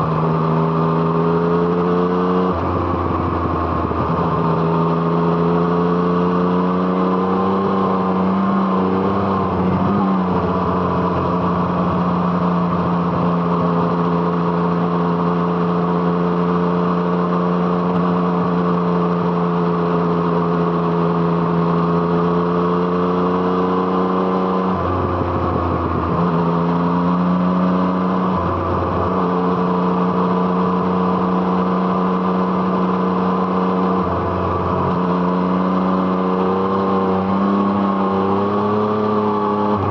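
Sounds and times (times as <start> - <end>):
motorcycle engine running: 23.9 - 39.9.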